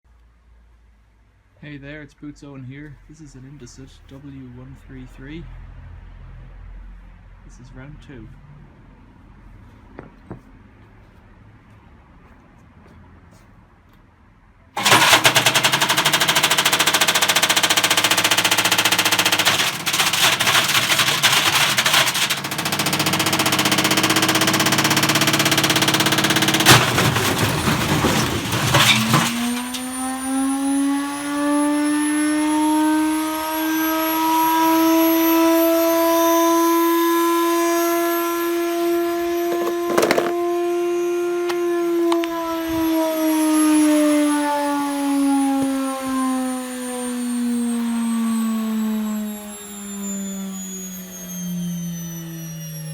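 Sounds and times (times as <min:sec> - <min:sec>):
brick clattering in washing machine drum: 0:14.8 - 0:29.9
washing machine motor whine: 0:14.8 - 0:52.9.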